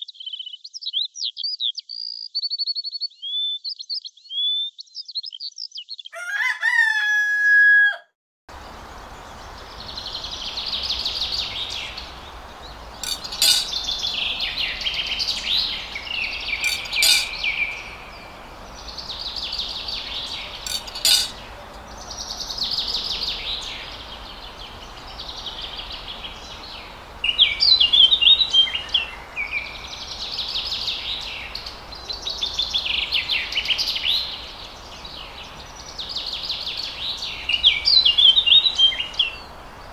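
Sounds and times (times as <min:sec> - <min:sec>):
birds chirping and singing: 0:00.0 - 0:06.5, 0:08.6 - 0:39.9
steady hiss: 0:08.5 - 0:39.9.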